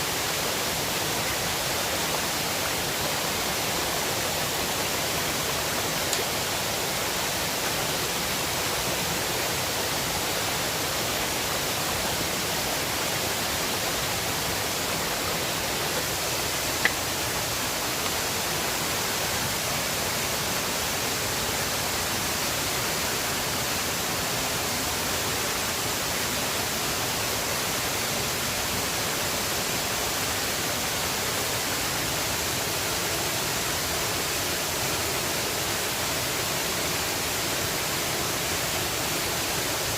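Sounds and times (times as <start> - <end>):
river water rushing: 0.0 - 39.9
small click: 16.8 - 17.0.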